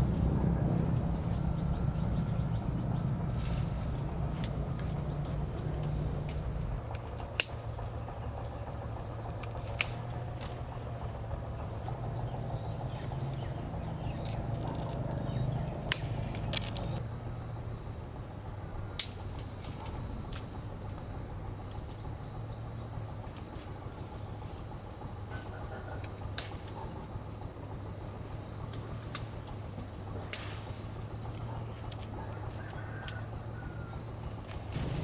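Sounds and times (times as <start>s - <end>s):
steady low hum: 0.0s - 32.6s, 33.2s - 35.0s
sharp clicks: 14.2s - 17.0s.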